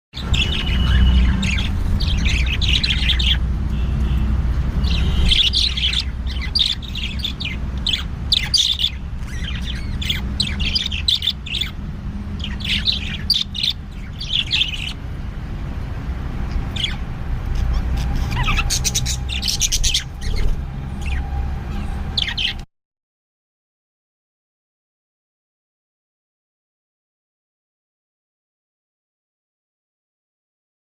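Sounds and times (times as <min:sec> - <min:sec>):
pet birds chirping: 0:00.2 - 0:22.7.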